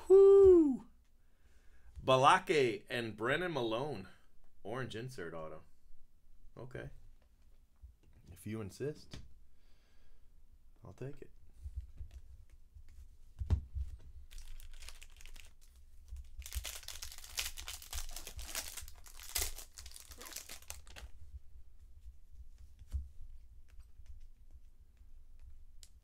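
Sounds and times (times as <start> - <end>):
foil wrapper tearing and crinkling: 14.3 - 21.1.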